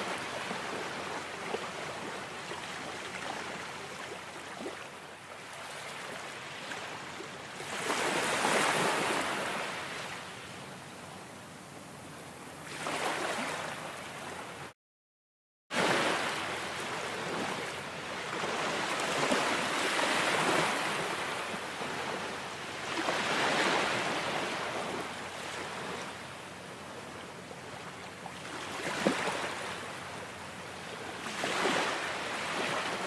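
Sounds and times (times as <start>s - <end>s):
ocean waves washing in: 15.7s - 27.2s.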